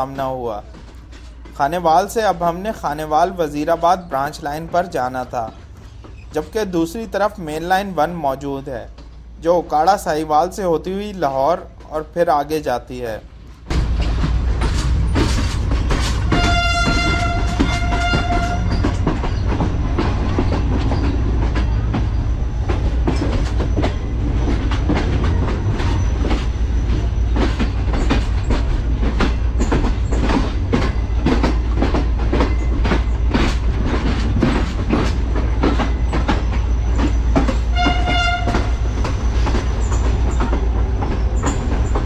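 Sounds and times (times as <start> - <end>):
train rumbling on track: 0.0 - 42.0
wheels clattering over rail joints: 0.0 - 42.0
locomotive horn: 16.3 - 18.9, 37.7 - 38.9.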